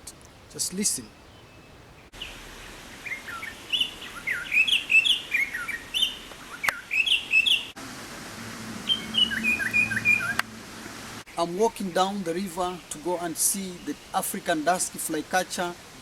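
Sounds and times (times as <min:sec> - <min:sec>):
bird singing whistled phrases: 0:03.1 - 0:07.7, 0:08.8 - 0:10.4.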